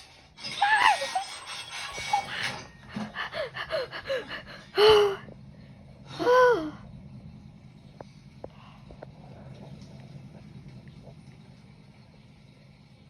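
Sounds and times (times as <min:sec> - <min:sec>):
loud gasping cries: 0:00.5 - 0:05.3
person gasping: 0:02.9 - 0:05.3.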